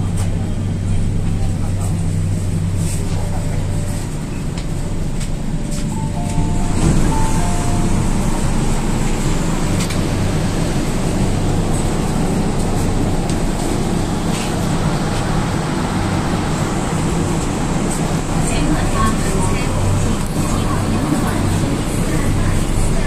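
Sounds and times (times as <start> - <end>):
train interior rumble: 0.0 - 23.0
low hum: 0.7 - 23.0.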